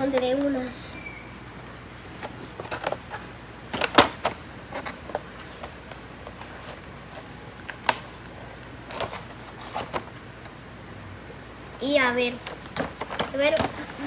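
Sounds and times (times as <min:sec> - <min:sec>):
plastic packaging crinkling: 0:06.4 - 0:09.9.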